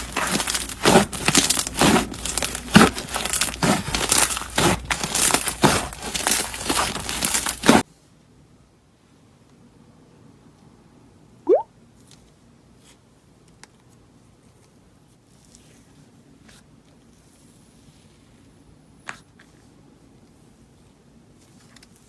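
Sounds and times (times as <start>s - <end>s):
slime squishing: 0.0s - 7.8s.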